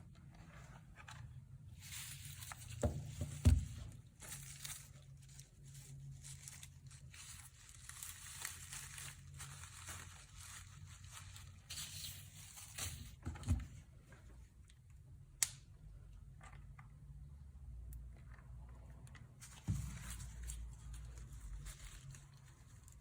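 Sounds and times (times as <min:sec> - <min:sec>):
dry fibre rustling and crackling: 0:01.7 - 0:13.2, 0:19.2 - 0:23.0.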